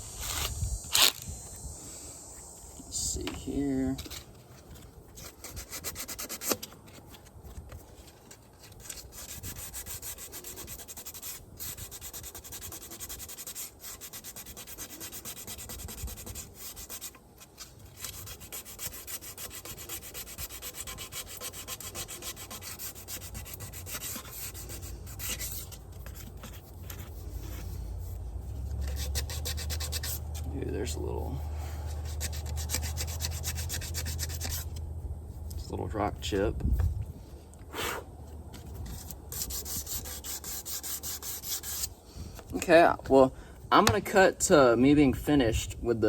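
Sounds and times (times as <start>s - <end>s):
sandpaper rubbing on metal rim: 5.2s - 6.7s, 8.8s - 34.8s, 38.8s - 42.0s.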